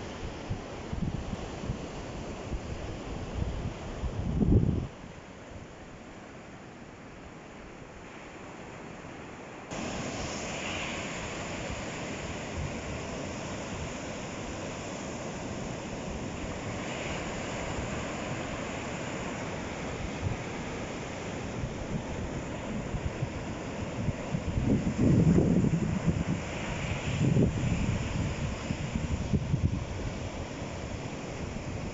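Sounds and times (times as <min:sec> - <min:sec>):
waves breaking on shore: 0:00.0 - 0:31.9.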